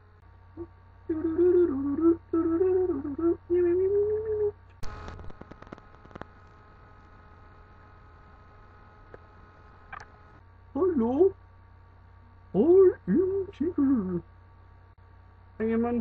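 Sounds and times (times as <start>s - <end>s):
person humming a tune: 0.6s - 4.6s
clicks: 4.7s - 6.6s.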